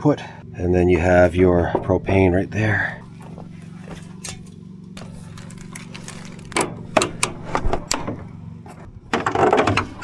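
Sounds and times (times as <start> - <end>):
steady low hum: 0.0 - 10.0
hoses and fittings clicking: 3.2 - 8.2.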